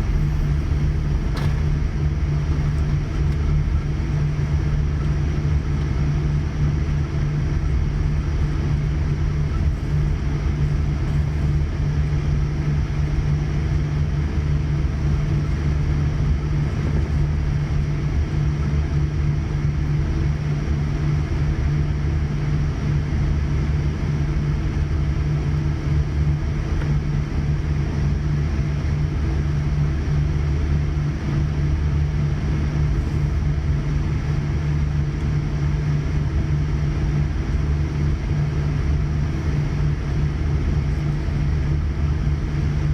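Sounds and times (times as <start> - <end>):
aircraft cabin hum and rumble: 0.0 - 42.9.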